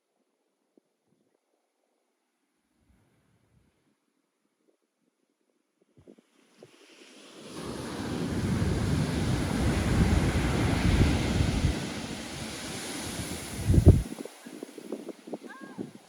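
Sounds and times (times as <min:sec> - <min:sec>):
wave breaking: 0:06.7 - 0:16.0
wind rumbling on microphone: 0:07.5 - 0:16.0.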